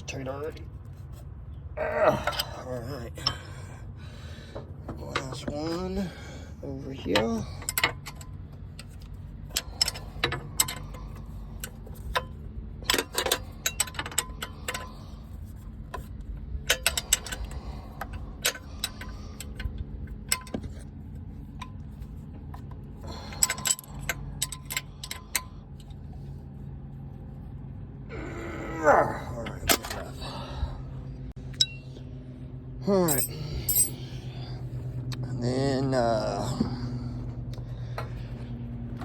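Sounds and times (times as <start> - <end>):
low hum: 7.5 - 39.0
wrench clinking against metal: 9.5 - 14.9, 23.2 - 25.6, 33.0 - 34.0.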